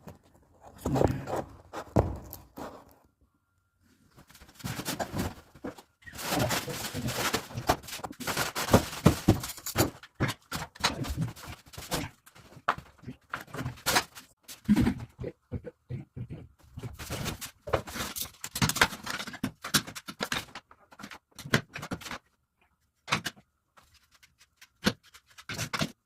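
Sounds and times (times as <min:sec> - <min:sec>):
packaging rustling: 0:04.3 - 0:12.0.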